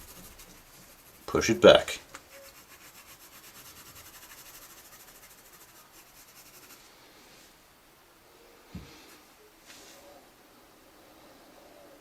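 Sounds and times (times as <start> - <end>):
pencil shading on paper: 2.3 - 6.8
soft thump: 8.7 - 9.0.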